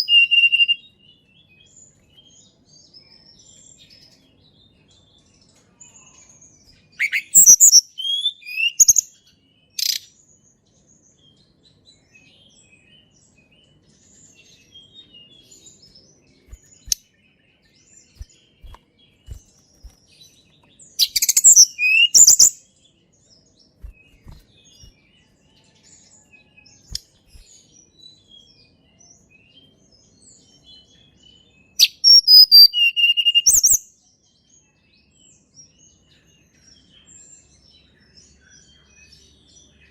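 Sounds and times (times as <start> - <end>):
bird singing whistled trills: 0.0 - 2.4, 6.6 - 11.2, 11.9 - 22.9, 23.8 - 33.9.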